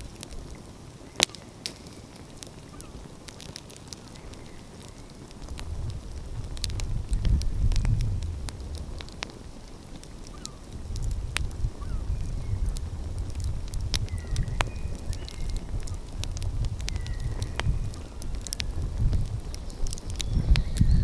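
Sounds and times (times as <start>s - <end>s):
wood fire crackling and popping: 0.0s - 21.0s
faint bird calls: 2.6s - 3.1s, 10.2s - 10.7s, 11.8s - 12.7s
steady low rumble: 5.3s - 21.0s.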